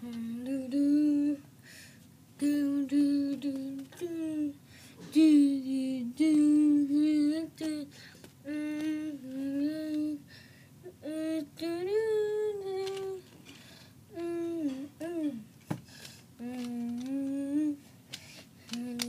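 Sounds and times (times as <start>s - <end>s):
high-pitched voice humming: 0.0s - 1.4s, 2.4s - 10.2s, 10.8s - 13.2s, 14.1s - 15.5s, 16.4s - 17.8s, 18.7s - 19.0s.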